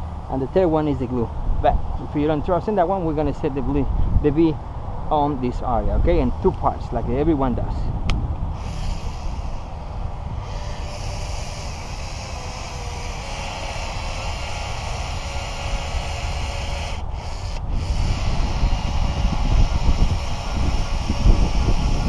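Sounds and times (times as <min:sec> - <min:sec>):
battery-powered adhesive gun running: 0:08.5 - 0:22.0.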